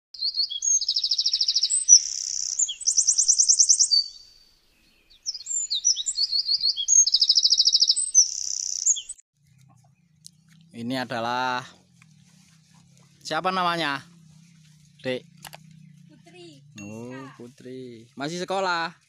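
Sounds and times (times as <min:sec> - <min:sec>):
songbird trilling and chirping: 0:00.2 - 0:17.4.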